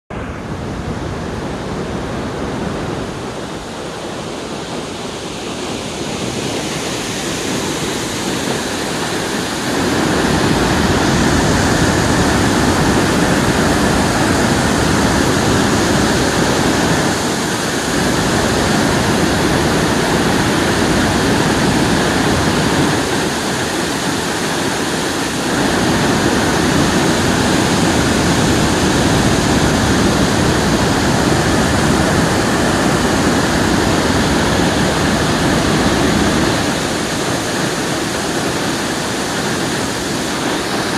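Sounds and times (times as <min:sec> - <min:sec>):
water rushing from a dam: 0:00.1 - 0:40.9.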